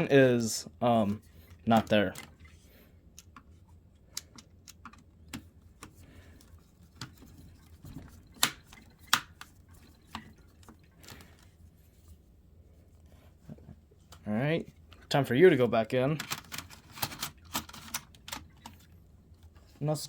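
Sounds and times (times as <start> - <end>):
laptop parts clicking: 4.1 - 11.5, 16.2 - 18.9.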